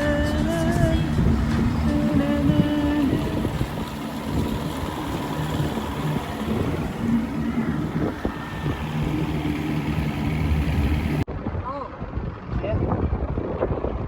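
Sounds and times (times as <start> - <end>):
small boat motor running: 0.0 - 11.3
wind noise on microphone: 0.0 - 14.0.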